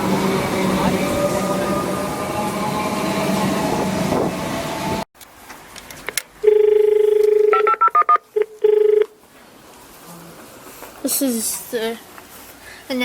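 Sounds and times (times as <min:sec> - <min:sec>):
electric train hum and rumble: 0:00.0 - 0:05.1
short dial beeps: 0:06.5 - 0:09.1.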